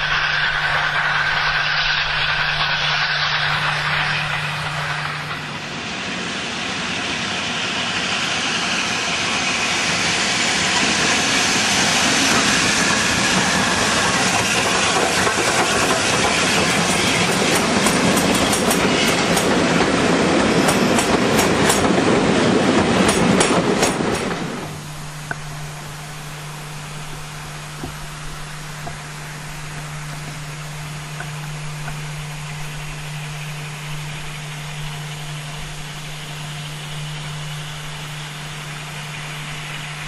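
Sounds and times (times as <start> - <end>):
train rushing past: 0.0 - 40.0
wheels clicking over rail joints: 12.2 - 24.6.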